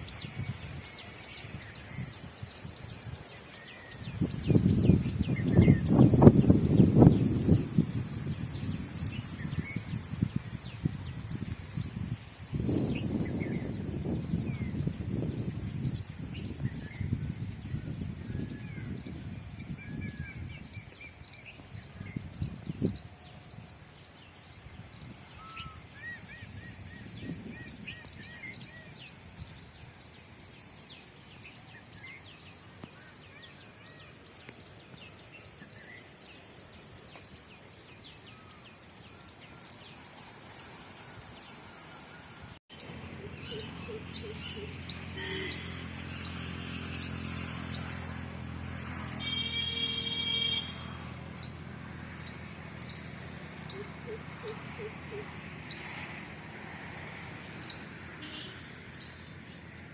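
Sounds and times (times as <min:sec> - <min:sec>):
wind rumble on microphone: 0:00.0 - 0:30.2
insect chorus: 0:00.0 - 0:59.9
bird chirps: 0:42.1 - 0:47.8.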